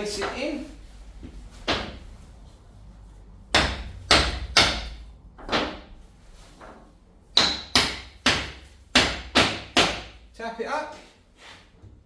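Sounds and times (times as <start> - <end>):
hammer knocking wooden wedge: 3.5 - 5.9, 7.4 - 10.2.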